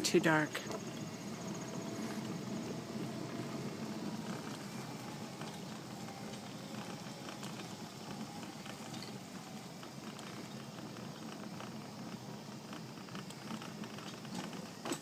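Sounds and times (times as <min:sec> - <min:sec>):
wheelchair motor and tyres rolling: 0:00.0 - 0:15.0
small ticks and rattles: 0:00.3 - 0:15.0.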